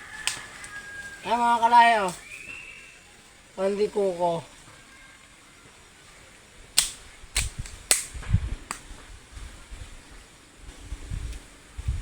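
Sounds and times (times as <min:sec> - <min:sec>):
sharp snaps: 0:00.2 - 0:00.5, 0:06.7 - 0:09.0.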